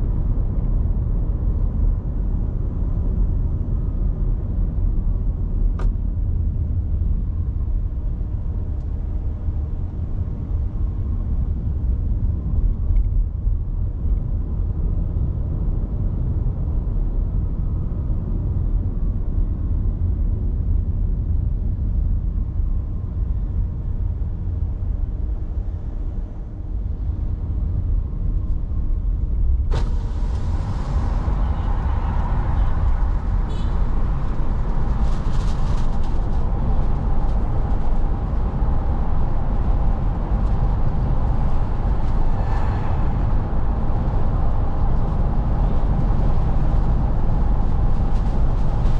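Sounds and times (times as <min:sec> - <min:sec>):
road and engine rumble: 0:00.0 - 0:48.9
loud hiss: 0:29.7 - 0:34.7.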